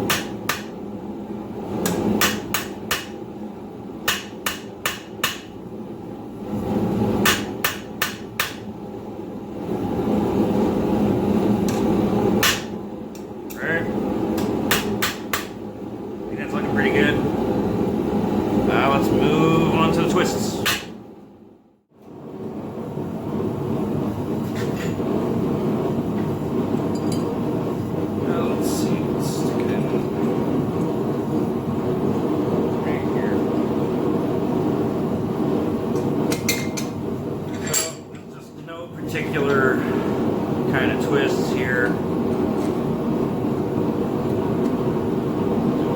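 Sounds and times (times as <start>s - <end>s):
hammer striking steel on anvil: 0.0s - 0.7s, 1.8s - 3.2s, 4.0s - 5.5s, 7.2s - 8.7s, 12.4s - 12.7s, 14.4s - 15.6s
forge roaring: 15.7s - 20.9s, 22.2s - 36.3s, 38.7s - 45.9s.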